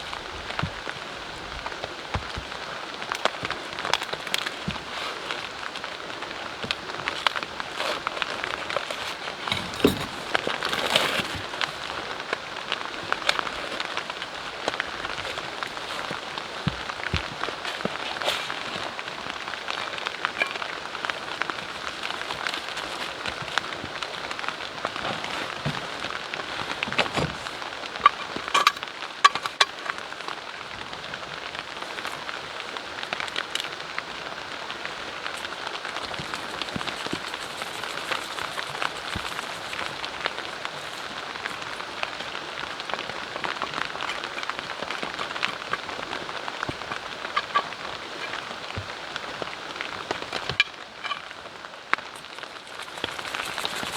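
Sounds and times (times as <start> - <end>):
rain pattering on a tent: 0.0 - 53.9
sharp drips and ticks: 50.5 - 53.9.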